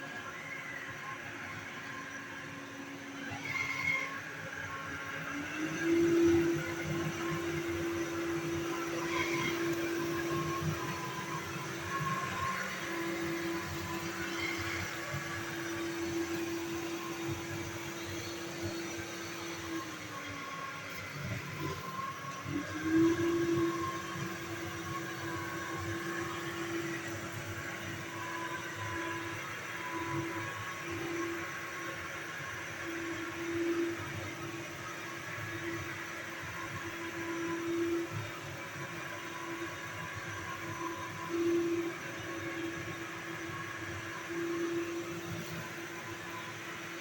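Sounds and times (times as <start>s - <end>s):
vacuum cleaner humming: 2.8s - 34.8s.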